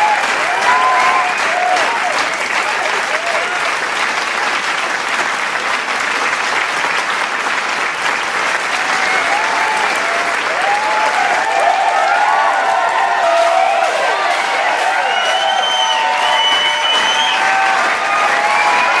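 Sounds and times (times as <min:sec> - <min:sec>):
crowd cheering and whooping: 0:00.0 - 0:03.7, 0:08.6 - 0:19.0
crowd applauding: 0:00.0 - 0:19.0.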